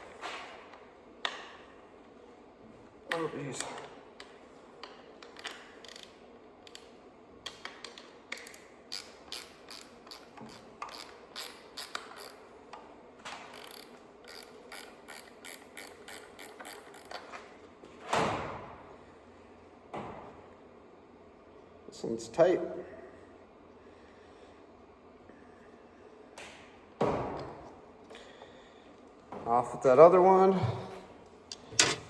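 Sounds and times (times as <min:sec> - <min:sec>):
ratchet wrench clicking: 0:05.8 - 0:06.8, 0:08.3 - 0:12.4, 0:13.5 - 0:17.2.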